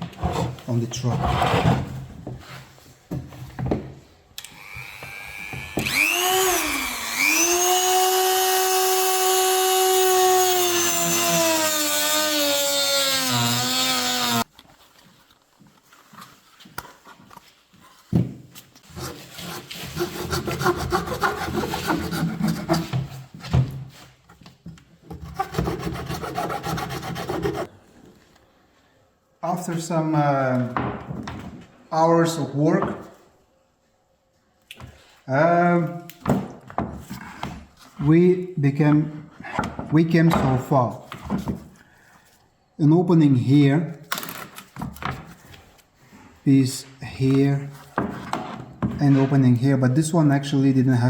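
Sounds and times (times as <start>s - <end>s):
power tool motor whine: 4.4s - 10.2s.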